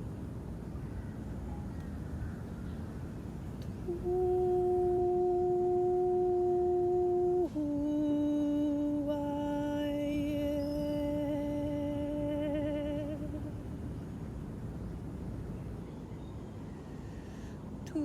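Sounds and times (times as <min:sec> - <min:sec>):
woman humming: 0:03.6 - 0:13.6.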